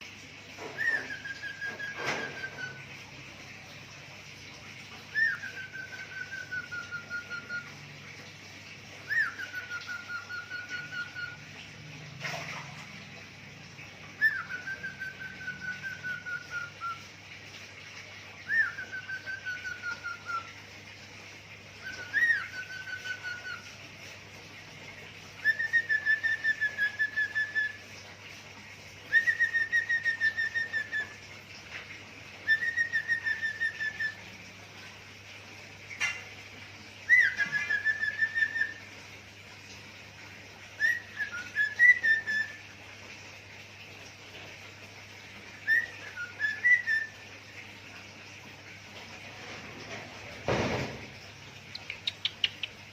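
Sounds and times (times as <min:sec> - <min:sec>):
cockatiel whistling a trill: 0:00.7 - 0:02.8, 0:05.1 - 0:07.7, 0:09.1 - 0:11.4, 0:14.2 - 0:17.0, 0:18.5 - 0:20.5, 0:21.9 - 0:23.6, 0:25.4 - 0:27.8, 0:29.1 - 0:31.1, 0:32.4 - 0:34.2, 0:37.1 - 0:38.8, 0:40.8 - 0:42.6, 0:45.6 - 0:47.1.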